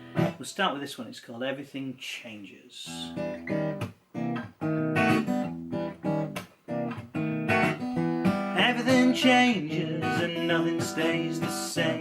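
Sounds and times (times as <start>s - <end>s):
acoustic guitar strumming: 0.0s - 0.5s, 2.9s - 12.0s.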